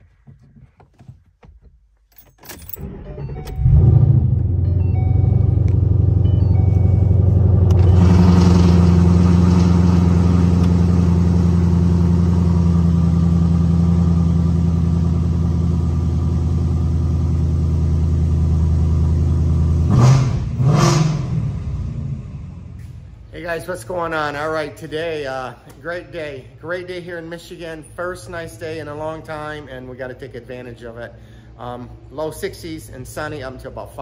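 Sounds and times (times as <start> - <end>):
car engine idling: 2.8 - 25.7.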